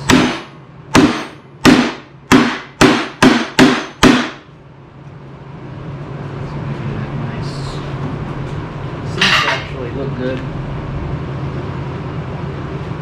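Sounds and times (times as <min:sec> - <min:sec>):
hammer striking metal: 0:00.0 - 0:04.5.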